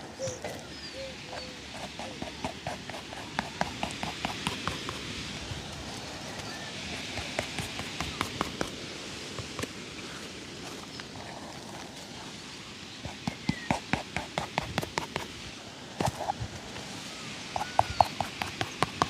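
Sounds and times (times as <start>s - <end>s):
steady background noise: 0.0s - 19.0s
shoe-shine taps and clacks: 7.0s - 8.8s, 17.6s - 19.0s.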